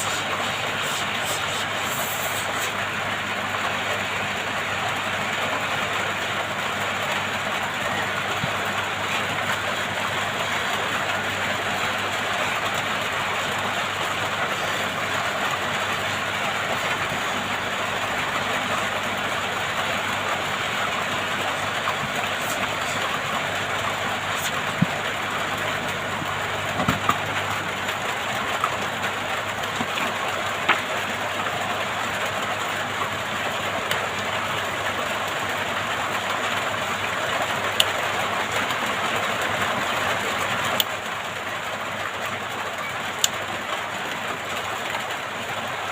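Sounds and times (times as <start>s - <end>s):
hot air station hissing: 0.0s - 2.9s, 20.7s - 26.5s.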